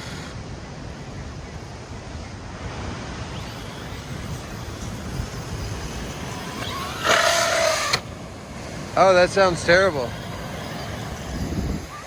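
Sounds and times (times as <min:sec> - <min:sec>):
electric motor whine: 0:00.0 - 0:12.0
wind on microphone: 0:00.0 - 0:12.0.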